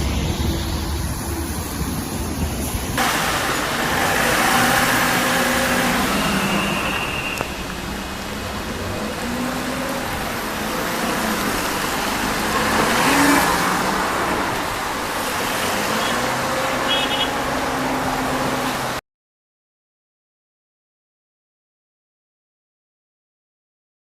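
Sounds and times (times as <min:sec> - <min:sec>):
vehicle engines running: 0:00.0 - 0:19.0
wind and rain rushing: 0:00.0 - 0:19.0.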